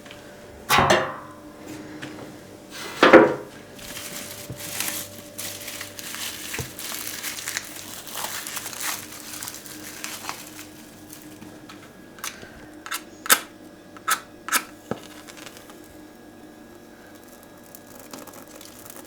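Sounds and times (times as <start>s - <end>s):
crinkling and rustling: 3.0s - 13.4s, 14.0s - 16.3s.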